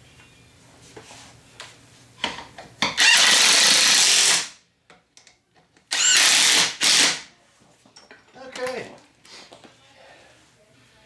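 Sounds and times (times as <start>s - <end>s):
pneumatic impact wrench burst: 3.0s - 4.6s, 5.9s - 7.2s.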